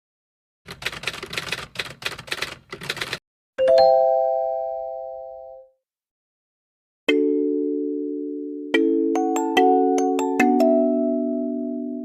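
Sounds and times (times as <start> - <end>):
clattering strokes like typing: 0.7 - 3.2.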